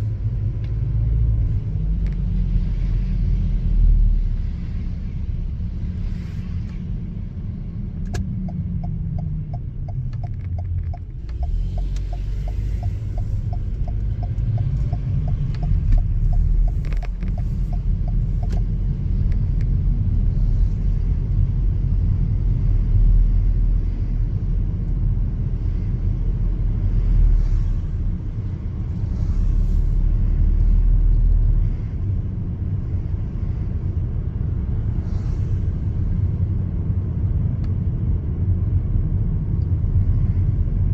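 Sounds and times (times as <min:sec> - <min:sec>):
car engine and road noise: 0:00.0 - 0:40.9
light ticks: 0:08.0 - 0:19.8.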